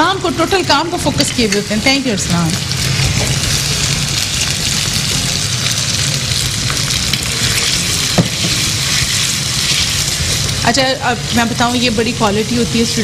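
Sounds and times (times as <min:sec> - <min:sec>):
potatoes sizzling in frying pan: 0:00.0 - 0:13.0.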